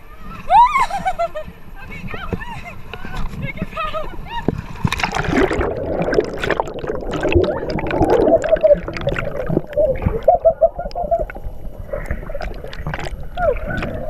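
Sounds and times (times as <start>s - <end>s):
water splashing from paddling: 2.9s - 14.0s.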